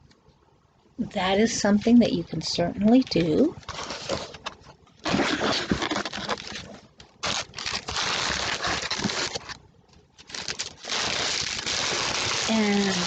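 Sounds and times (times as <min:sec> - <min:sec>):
paper and packaging rustling: 0:03.0 - 0:13.0.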